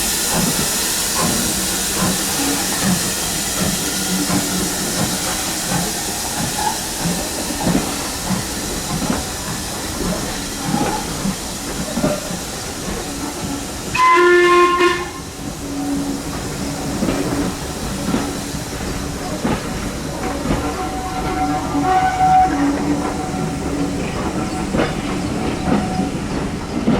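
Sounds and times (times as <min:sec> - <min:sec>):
steam locomotive hissing: 0:00.0 - 0:26.9
steam whistle blast: 0:13.4 - 0:16.6, 0:20.8 - 0:23.9.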